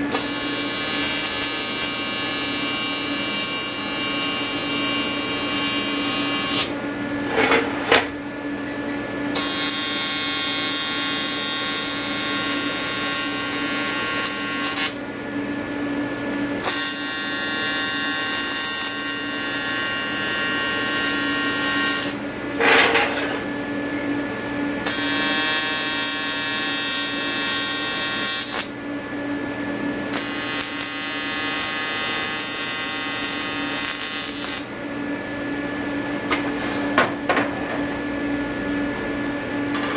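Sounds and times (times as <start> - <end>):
welding arc buzzing: 0.0 - 6.8, 9.3 - 15.0, 16.6 - 22.2, 24.8 - 28.8, 30.1 - 34.7.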